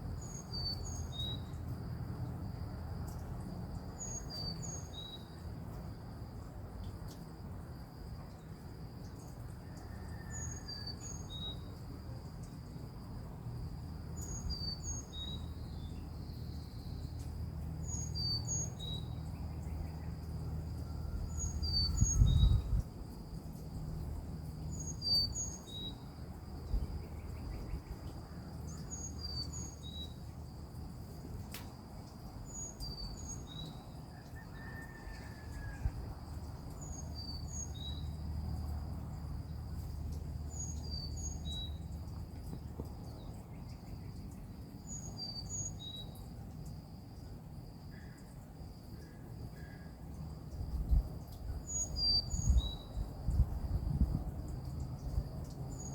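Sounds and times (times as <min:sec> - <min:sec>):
insects droning: 0:00.0 - 0:55.9
small bird chirping: 0:00.2 - 0:01.7, 0:14.2 - 0:20.3, 0:21.3 - 0:22.9, 0:24.5 - 0:26.0, 0:26.6 - 0:30.4, 0:32.4 - 0:34.4, 0:39.7 - 0:46.8, 0:51.4 - 0:53.4.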